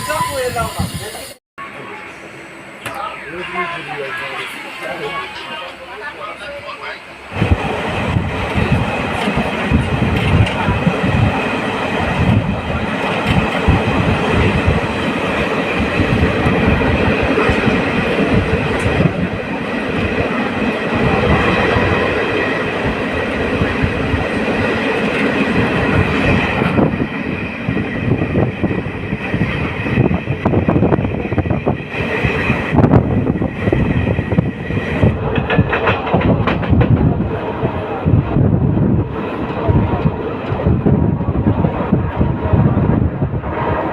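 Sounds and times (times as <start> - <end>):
train wheels rumbling on track: 2.0 - 43.9
rail joints clattering: 34.4 - 37.3.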